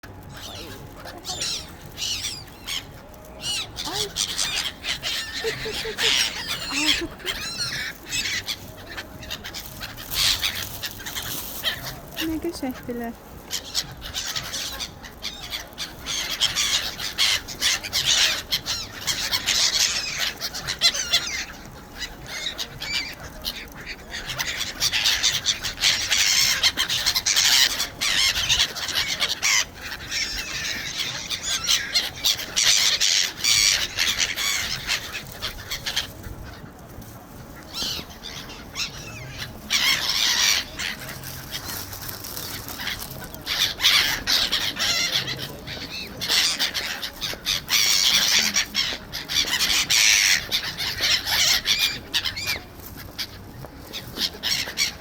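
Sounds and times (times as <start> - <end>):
flock of birds calling: 0.0 - 55.0.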